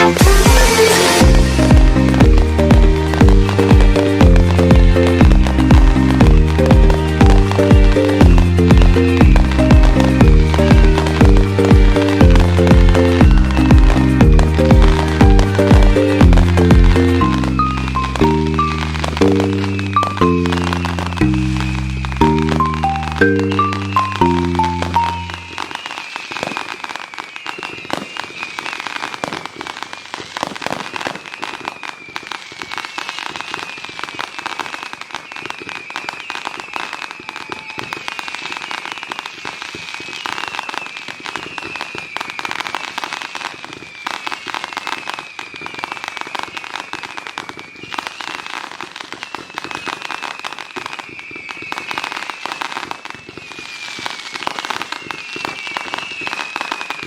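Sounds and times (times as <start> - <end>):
high falling tone: 0.0 - 25.8
fireworks crackling and popping: 0.0 - 57.0.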